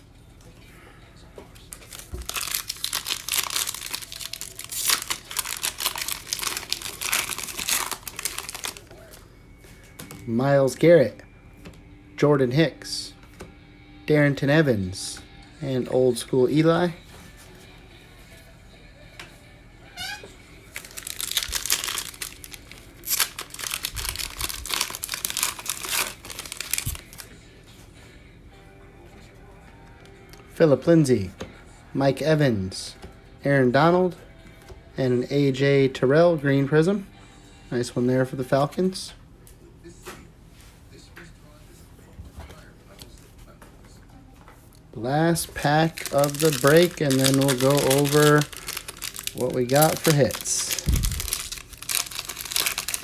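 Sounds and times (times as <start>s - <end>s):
foil wrapper tearing and crinkling: 1.8s - 8.9s, 20.0s - 27.3s, 45.4s - 53.0s.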